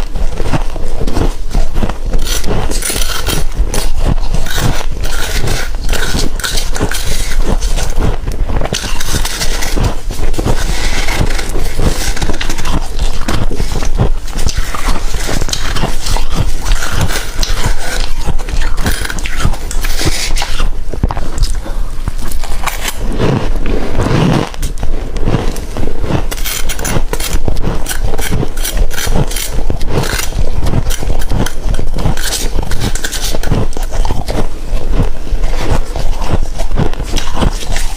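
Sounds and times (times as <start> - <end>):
frost being scraped and crunched: 0.0 - 37.9.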